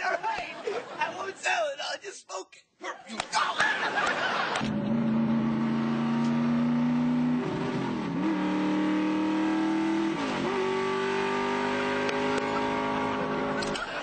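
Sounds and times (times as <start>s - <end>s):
car engine accelerating: 4.3s - 13.8s.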